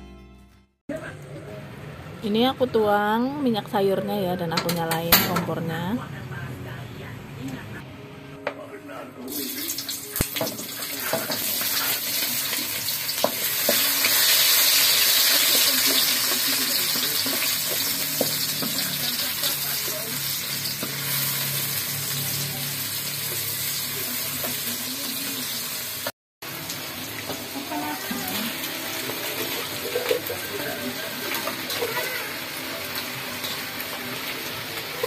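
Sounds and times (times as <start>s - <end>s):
vegetables sizzling in oil: 9.3s - 35.0s.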